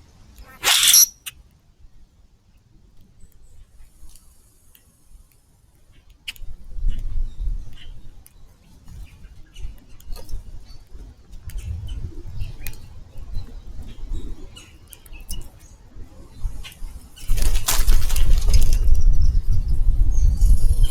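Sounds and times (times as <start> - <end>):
birds chirping: 0.4 - 1.3
wings flapping: 0.5 - 1.1, 17.2 - 19.0
low rumble: 11.5 - 12.7.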